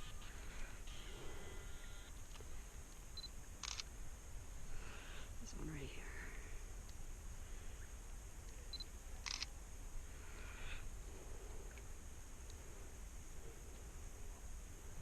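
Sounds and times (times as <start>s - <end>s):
low steady rumble: 0.0s - 15.0s
camera shutter clicks: 3.6s - 3.9s.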